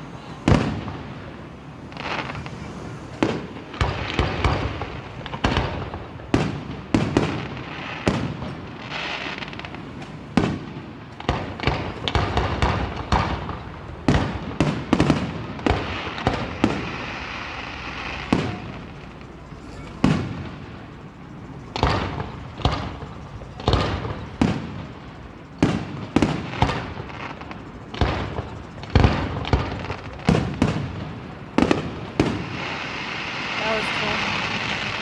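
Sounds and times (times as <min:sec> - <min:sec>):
crackling fireworks: 0:00.0 - 0:35.0
firework shells bursting: 0:00.5 - 0:35.0.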